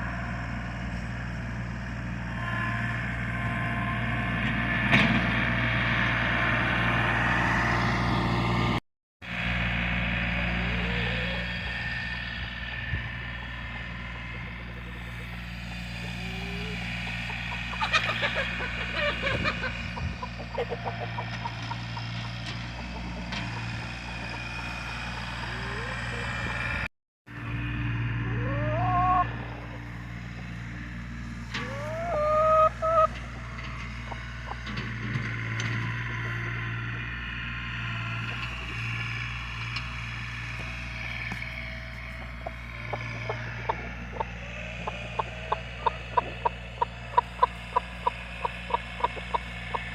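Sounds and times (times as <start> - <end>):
engine running low: 0.0 - 49.9
chickens clucking: 10.3 - 11.8, 13.4 - 26.9, 28.2 - 36.6, 40.5 - 49.9.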